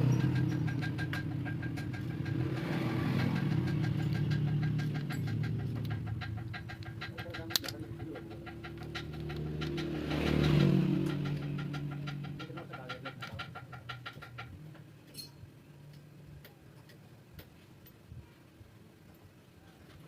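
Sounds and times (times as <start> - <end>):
engine running: 0.0 - 14.9.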